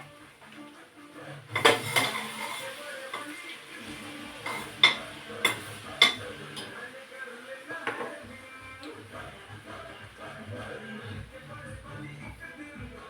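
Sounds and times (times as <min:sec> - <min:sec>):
metal utensil scraping cookware: 0:01.5 - 0:03.4, 0:04.4 - 0:06.7.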